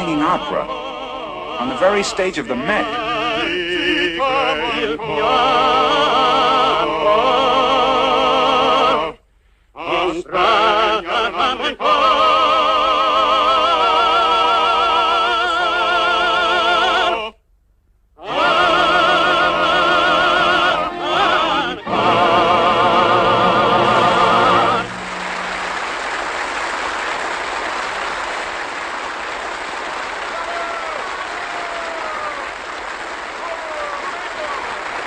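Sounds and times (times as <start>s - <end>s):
operatic singing with vibrato: 0.0s - 9.2s, 9.8s - 17.3s, 18.2s - 26.9s.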